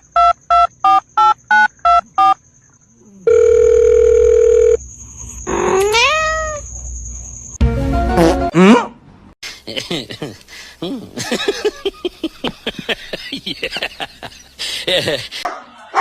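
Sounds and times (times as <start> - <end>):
steady electronic phone tone: 3.3 - 4.8
cat meowing: 5.7 - 6.6.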